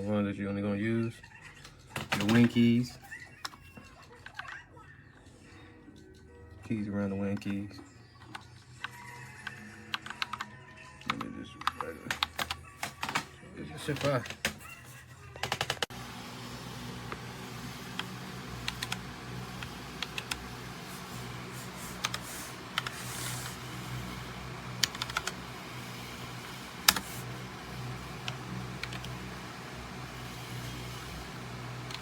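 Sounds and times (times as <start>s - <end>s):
steady low hum: 15.9s - 32.0s.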